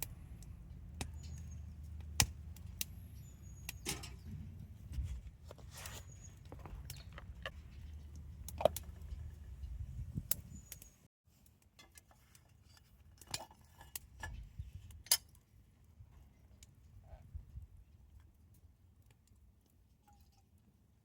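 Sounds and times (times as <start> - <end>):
low rumble: 0.0 - 10.7.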